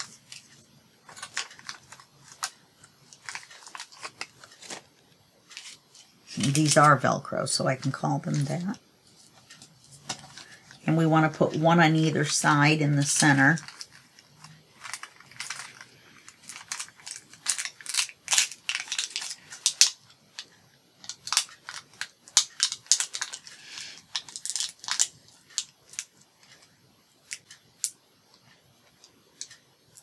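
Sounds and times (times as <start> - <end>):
velcro dots crackling and clicking: 0.0 - 6.9, 13.0 - 30.0
paper backing rustling: 0.0 - 20.5.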